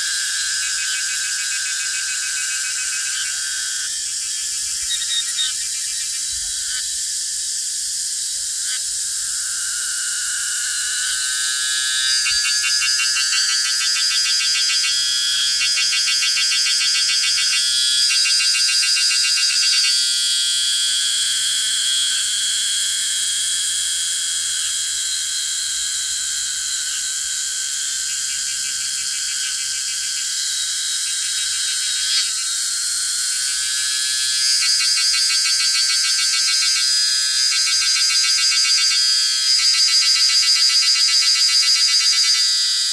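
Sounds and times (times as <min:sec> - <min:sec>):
cicadas buzzing: 0:00.0 - 0:42.9.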